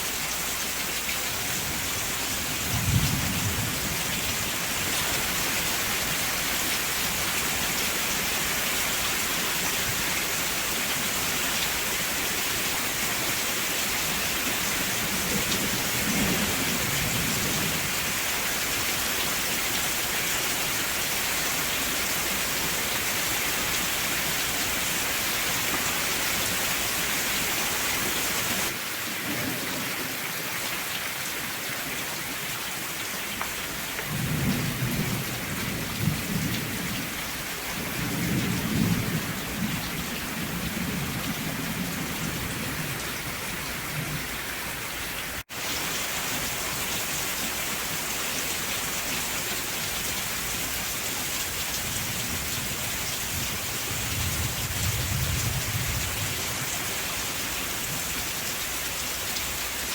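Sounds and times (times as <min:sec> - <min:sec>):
steady rain: 0:00.0 - 0:59.9
rolling thunder: 0:02.4 - 0:04.4, 0:34.0 - 0:44.3, 0:53.4 - 0:56.4.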